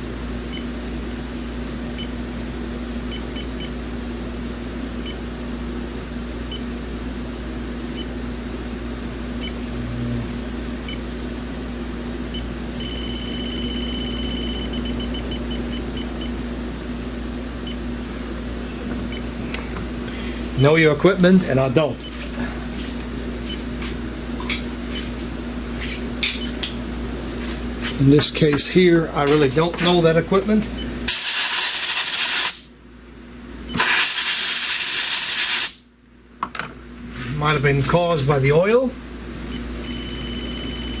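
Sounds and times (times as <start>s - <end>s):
steady hum: 0.0s - 41.0s
leak detector beeping: 12.3s - 16.4s, 39.5s - 41.0s.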